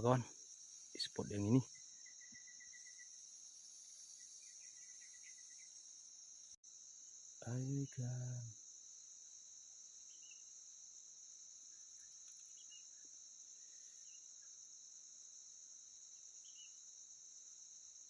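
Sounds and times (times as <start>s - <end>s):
insect chorus buzzing: 0.0s - 18.0s
short insect chirps: 0.0s - 18.0s.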